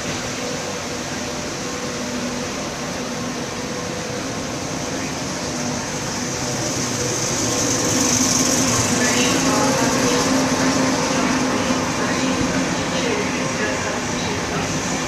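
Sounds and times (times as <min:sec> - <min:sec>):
train running: 0:00.0 - 0:15.0.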